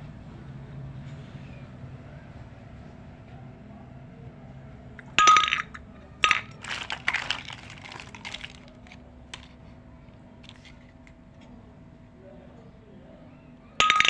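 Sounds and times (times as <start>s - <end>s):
toy kitchen pieces clinking: 5.0s - 9.7s, 10.4s - 11.2s, 13.8s - 14.0s.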